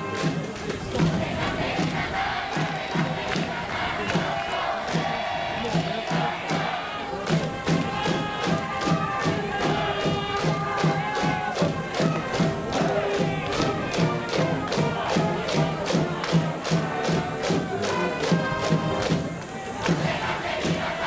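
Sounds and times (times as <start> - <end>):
crowd chanting: 0.0 - 21.0
quick steady drum beat: 0.0 - 21.0
brass band playing: 7.9 - 21.0.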